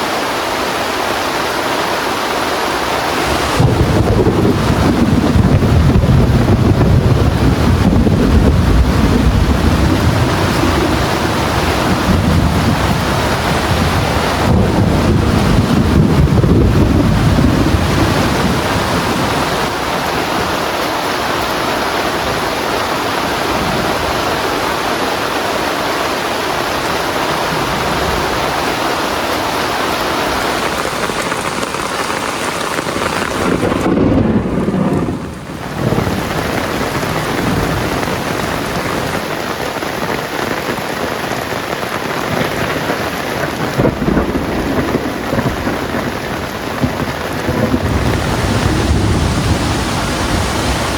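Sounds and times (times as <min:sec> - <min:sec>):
heavy rain falling: 0:00.0 - 0:50.9
thunder rumbling: 0:03.1 - 0:20.7, 0:26.8 - 0:39.2, 0:42.4 - 0:50.9.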